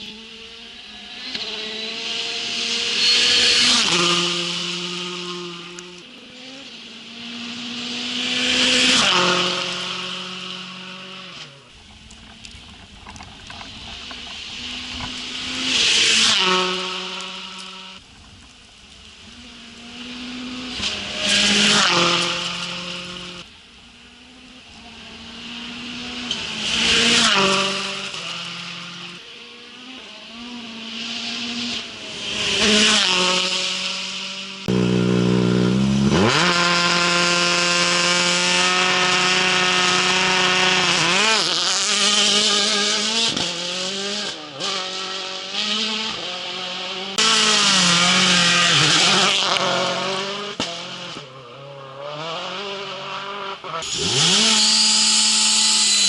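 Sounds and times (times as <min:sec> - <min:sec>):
rally cars passing: 0:00.0 - 0:56.0
car engine revving through gear changes: 0:34.6 - 0:51.3, 0:51.9 - 0:55.1.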